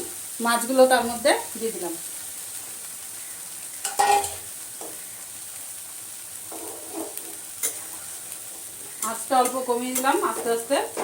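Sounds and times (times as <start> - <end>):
vegetables sizzling in oil: 0.0 - 11.0
spatula scraping pan: 6.5 - 11.0.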